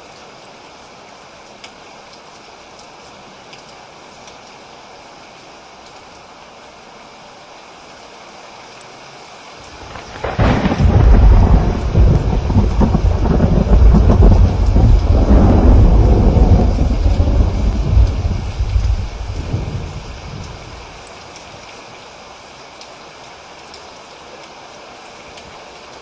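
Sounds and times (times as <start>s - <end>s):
steady rain: 0.0s - 26.0s
deep roll of thunder: 9.8s - 21.0s.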